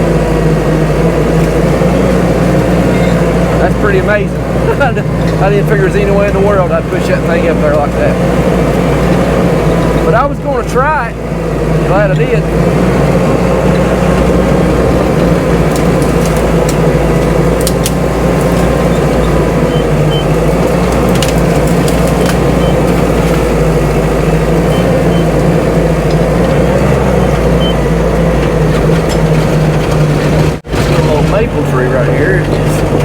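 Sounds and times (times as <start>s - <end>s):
bulldozer diesel engine running: 0.0s - 33.0s
wood and branches snapping: 15.0s - 24.0s.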